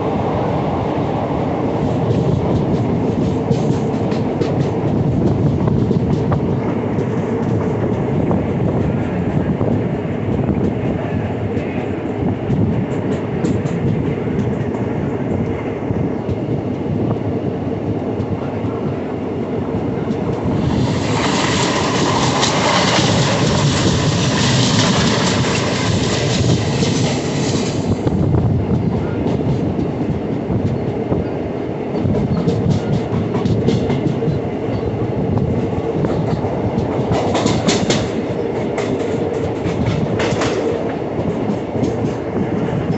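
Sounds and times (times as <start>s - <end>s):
train wheels rumbling on track: 0.0s - 42.9s
loud rushing hiss: 20.4s - 28.1s.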